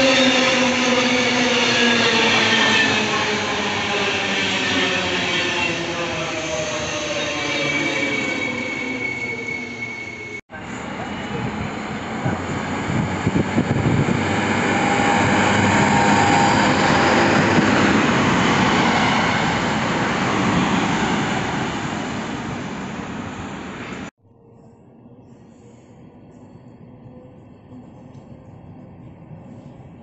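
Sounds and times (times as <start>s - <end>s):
high wheel squeal: 0.0s - 10.4s
diesel railcar passing: 0.0s - 24.1s.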